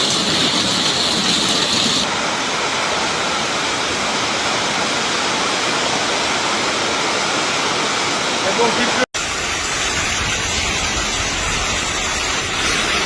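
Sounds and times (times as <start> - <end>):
hail pelting down: 0.0 - 3.6, 8.6 - 13.0.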